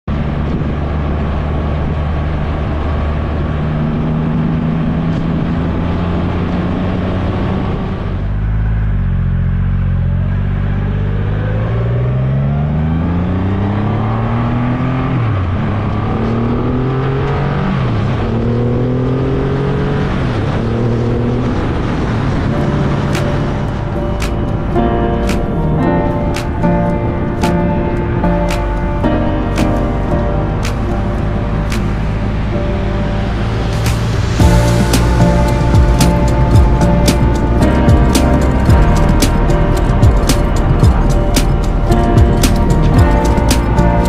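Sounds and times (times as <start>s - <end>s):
wind rushing: 18.1s - 44.0s.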